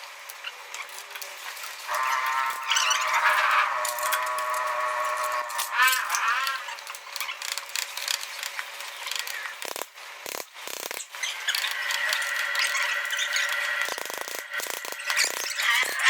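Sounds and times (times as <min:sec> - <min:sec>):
mechanical clicking and scraping: 0:00.2 - 0:16.0
steady high tone: 0:01.9 - 0:06.8.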